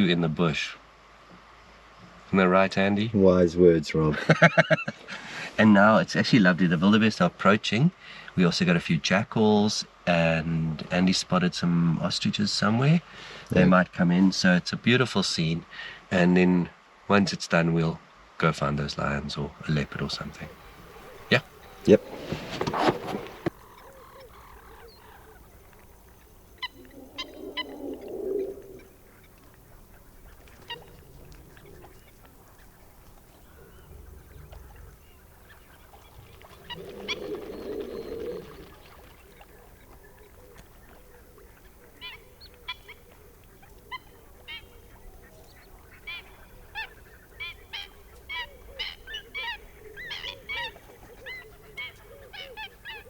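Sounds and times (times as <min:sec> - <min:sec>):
wildebeest grunting: 0:19.6 - 0:25.7.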